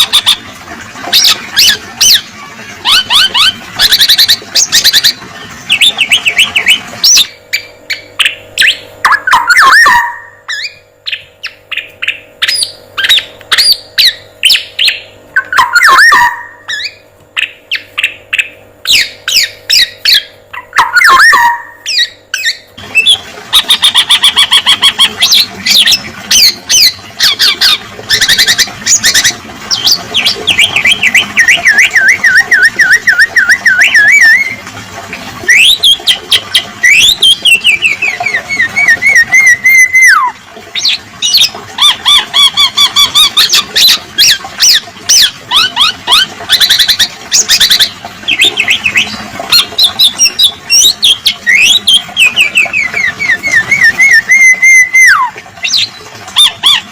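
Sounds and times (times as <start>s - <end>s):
bird rapid chattering notes: 1.2s - 34.6s
bird wavering whistle: 2.9s - 34.6s, 36.8s - 56.8s.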